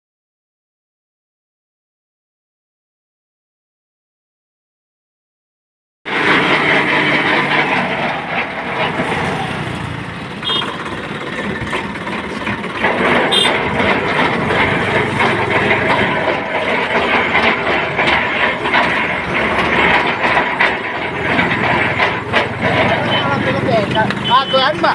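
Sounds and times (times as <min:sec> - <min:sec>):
vehicle engine rattling: 0:06.1 - 0:24.9.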